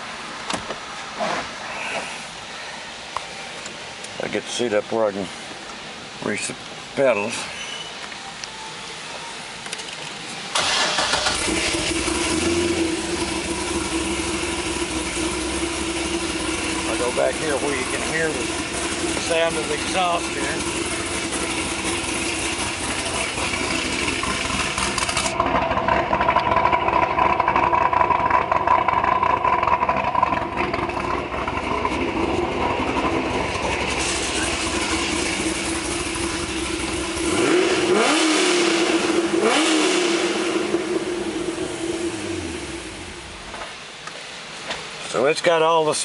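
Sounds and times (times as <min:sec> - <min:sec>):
car engine idling and revving: 0:08.4 - 0:44.6.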